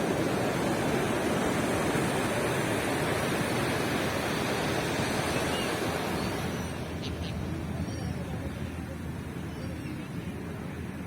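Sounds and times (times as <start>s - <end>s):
surf washing onto beach: 0.0s - 9.4s.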